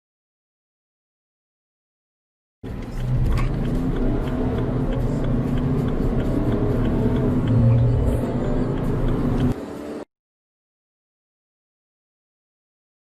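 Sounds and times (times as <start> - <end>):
car engine accelerating: 2.6 - 10.1.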